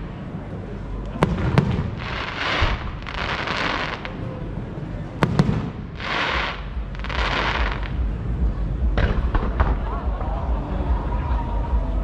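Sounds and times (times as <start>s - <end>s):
fireworks sharp bangs: 1.2s - 4.2s, 5.2s - 8.2s, 8.9s - 9.9s
low rumble: 4.1s - 12.0s.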